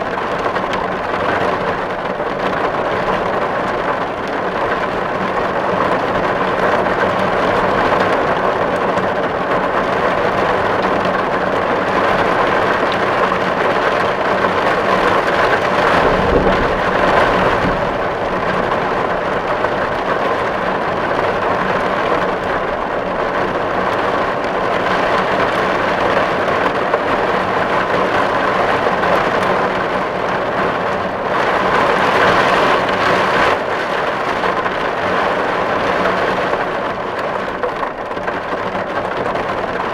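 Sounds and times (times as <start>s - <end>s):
heavy rain on a tin roof: 0.0s - 39.9s
low rumble: 14.8s - 21.1s.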